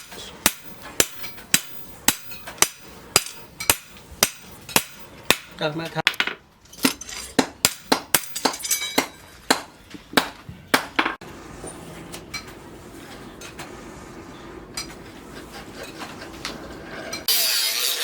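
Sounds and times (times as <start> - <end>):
hammer striking steel: 0.0 - 5.6, 6.8 - 11.2.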